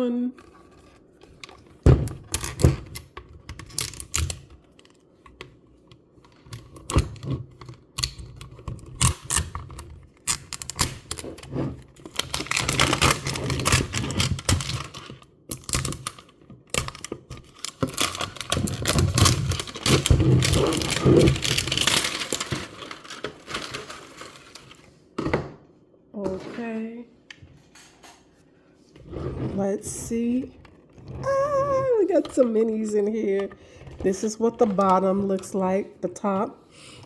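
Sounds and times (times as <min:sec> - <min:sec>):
paper rustling and tearing: 0:17.6 - 0:24.9.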